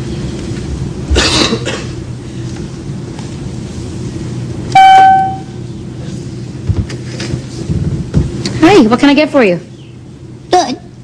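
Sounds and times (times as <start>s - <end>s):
steady cabin drone: 0.0s - 11.0s
flight attendant call chime: 4.7s - 5.6s.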